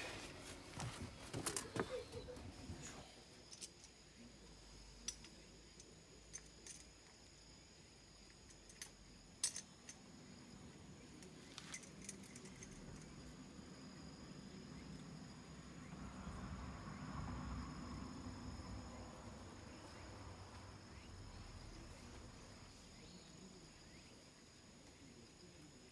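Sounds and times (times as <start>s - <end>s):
light clicks and clinks: 0.0s - 4.0s, 5.0s - 7.2s, 8.3s - 10.1s, 11.1s - 13.2s
high-pitched insect trill: 1.5s - 25.9s.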